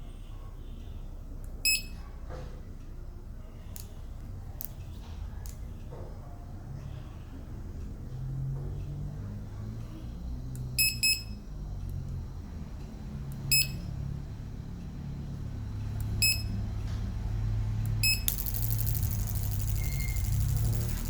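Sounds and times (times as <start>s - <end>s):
short electronic beeps: 18.0s - 21.0s
fast buzzing rattle: 18.2s - 21.0s
low steady hum: 18.2s - 21.0s.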